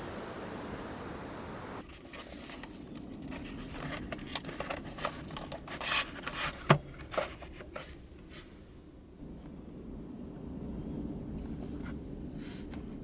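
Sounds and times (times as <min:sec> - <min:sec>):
handling clicks rustles and scrapes: 0:01.8 - 0:08.6.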